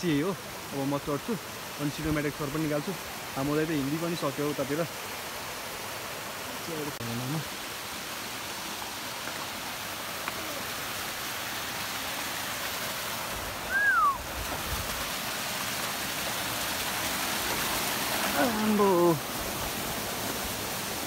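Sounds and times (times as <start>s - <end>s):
waterfall rushing: 0.0s - 21.0s
short falling whistle: 13.7s - 14.2s.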